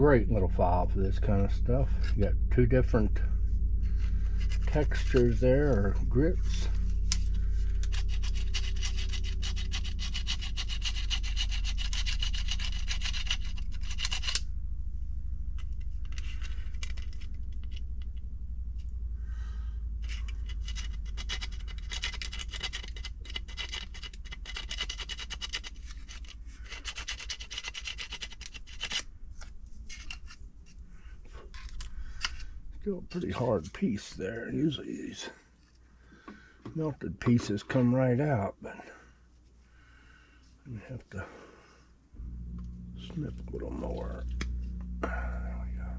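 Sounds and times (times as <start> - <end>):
nail file rubbing plastic: 6.5 - 14.4, 20.0 - 32.5.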